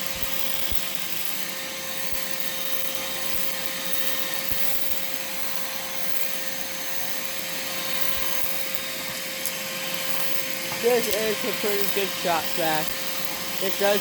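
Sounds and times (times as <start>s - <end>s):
shop vac whining: 0.0s - 14.0s
vacuum sucking up dirt: 7.3s - 14.0s.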